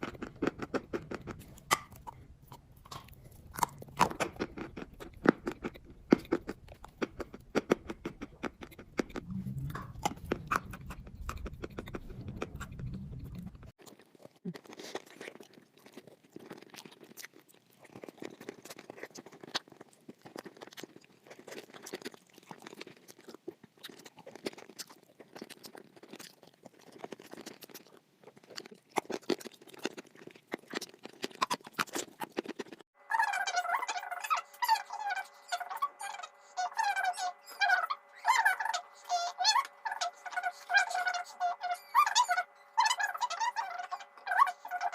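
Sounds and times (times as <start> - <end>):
low hum: 0.0 - 13.7
person chewing and crunching chalk: 0.0 - 32.9.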